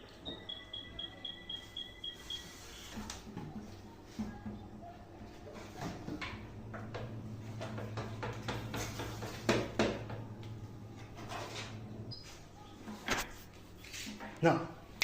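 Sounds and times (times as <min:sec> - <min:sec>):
steady low hum: 0:00.0 - 0:12.7
cooking knocks and clatter: 0:03.0 - 0:12.1.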